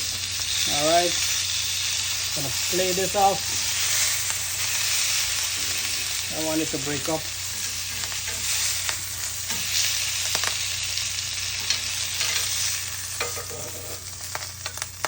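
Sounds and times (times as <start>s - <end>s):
fish sizzling on a grill: 0.0s - 15.0s.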